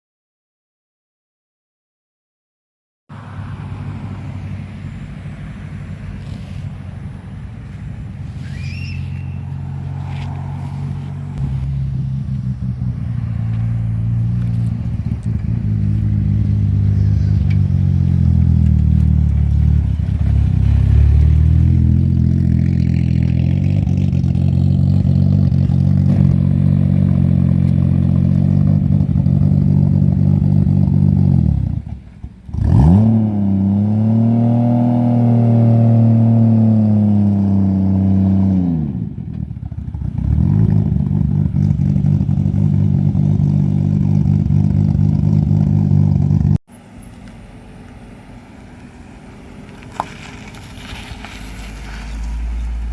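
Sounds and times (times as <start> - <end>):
higher engine note climbing: 3.1 - 52.9
car engine running: 9.5 - 32.5, 39.4 - 52.9.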